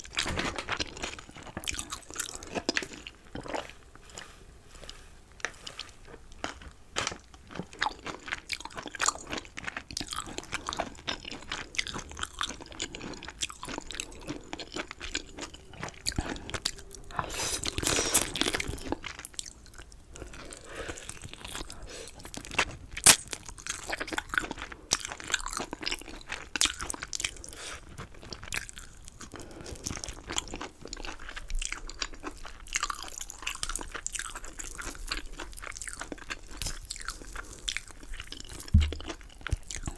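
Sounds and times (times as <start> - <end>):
crunchy chewing: 0.1 - 39.9
sharp loud crack: 23.1 - 23.4.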